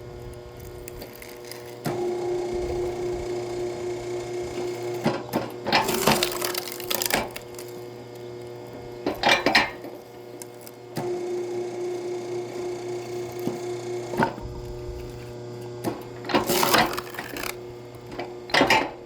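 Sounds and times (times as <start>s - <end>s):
wood cracking and splintering: 5.7s - 8.2s, 16.4s - 17.6s.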